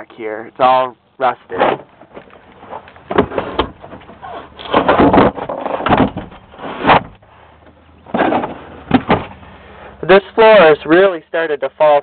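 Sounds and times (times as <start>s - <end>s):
knocks and rustling: 1.5s - 9.4s.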